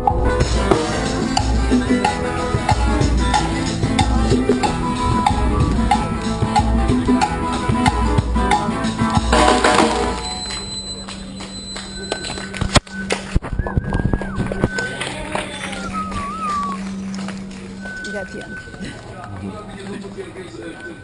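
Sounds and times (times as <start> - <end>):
street band playing drum music: 0.0 - 12.6.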